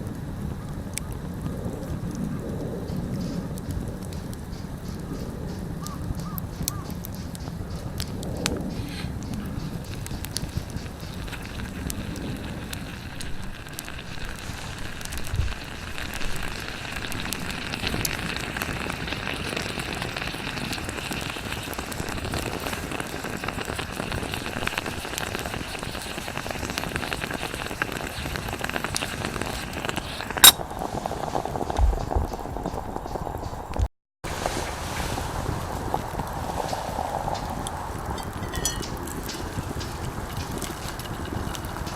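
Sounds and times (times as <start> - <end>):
moka pot bubbling and hissing: 0.0 - 41.9
wood fire crackling: 0.0 - 41.9.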